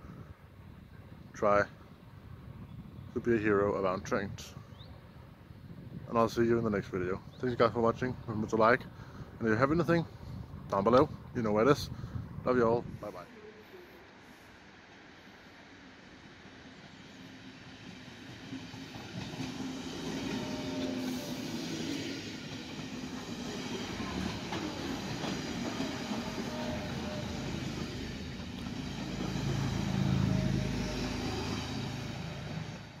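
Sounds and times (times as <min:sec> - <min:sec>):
passenger train passing: 0:12.8 - 0:33.0.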